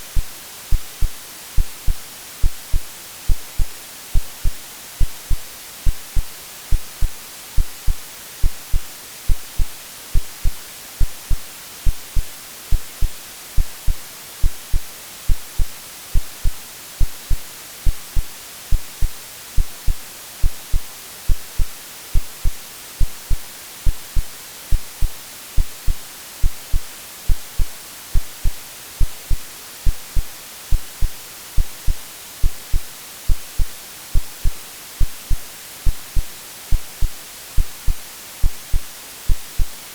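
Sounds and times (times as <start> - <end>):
heartbeat thumps: 0.0 - 39.8
white-noise hiss: 0.0 - 39.9.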